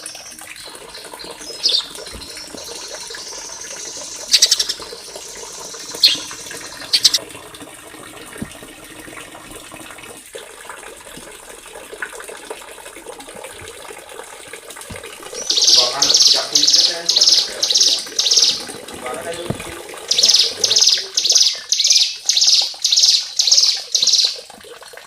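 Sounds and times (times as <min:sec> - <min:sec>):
songbird buzzy trills: 0:00.0 - 0:07.2, 0:15.4 - 0:19.5, 0:20.1 - 0:24.5.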